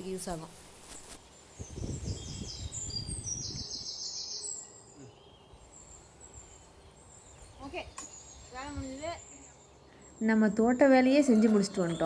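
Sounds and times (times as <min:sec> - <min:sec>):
small birds chirping: 0:00.0 - 0:12.0
rustling and handling noise: 0:00.2 - 0:01.3.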